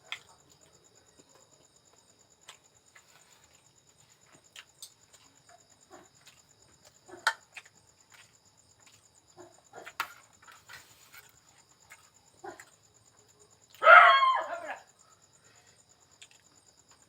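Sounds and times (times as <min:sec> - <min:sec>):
person chewing and eating: 0:02.4 - 0:09.2.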